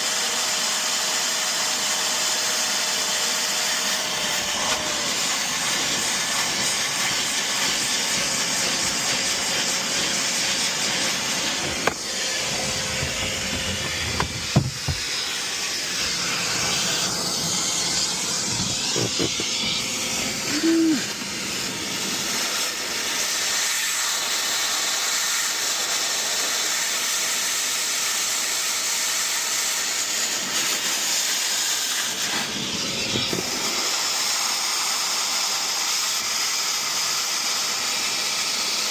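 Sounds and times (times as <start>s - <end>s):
rushing air hiss: 4.2s - 26.4s.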